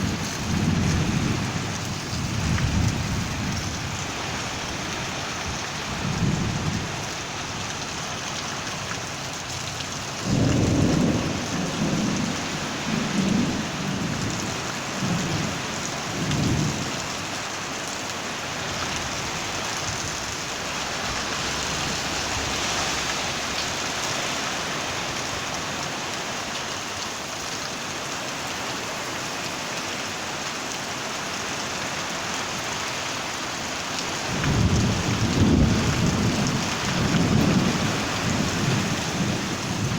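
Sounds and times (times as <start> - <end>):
thunder rumbling: 0.0 - 7.2, 10.0 - 16.9, 34.2 - 39.9
heavy rain falling: 0.0 - 39.9.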